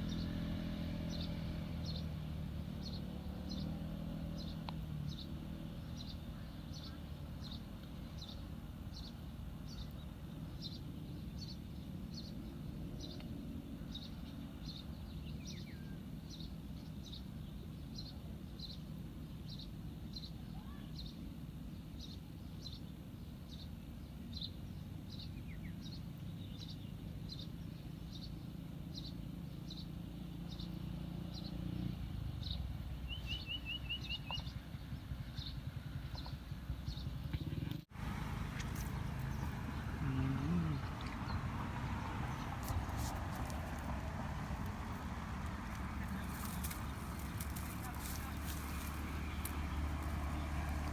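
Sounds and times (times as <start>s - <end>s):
low outdoor rumble: 37.9s - 50.9s
bird chirping: 38.0s - 50.9s.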